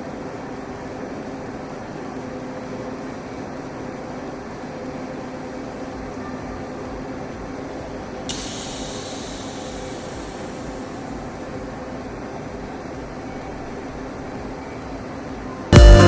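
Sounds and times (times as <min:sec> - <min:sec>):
steady low hum: 0:00.0 - 0:16.0
sudden hiss: 0:08.3 - 0:11.6.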